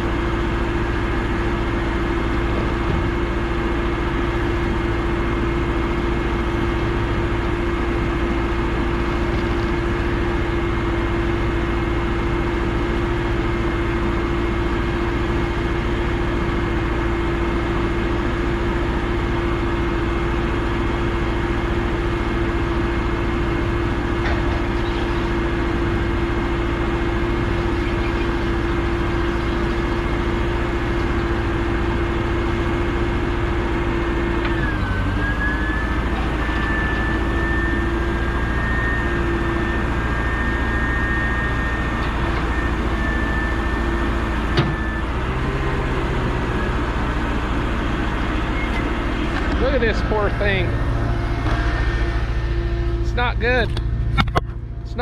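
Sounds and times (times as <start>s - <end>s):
road and engine noise in truck cab: 0.0s - 55.0s
steady whine: 45.8s - 55.0s.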